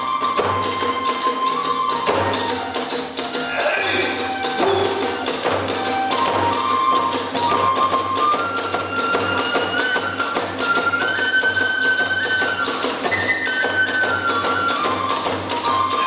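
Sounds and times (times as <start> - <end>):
bamboo flute melody: 0.0 - 16.0
rapid drum beats: 0.1 - 11.1.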